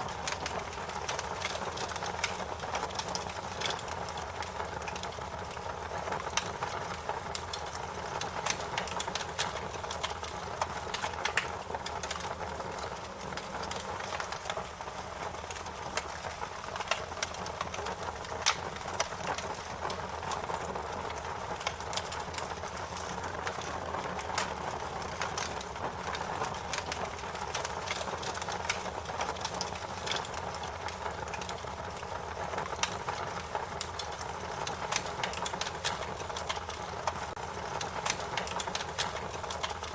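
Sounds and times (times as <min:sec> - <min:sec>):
fire popping and snapping: 0:00.0 - 0:39.9
wood fire crackling: 0:00.0 - 0:39.9.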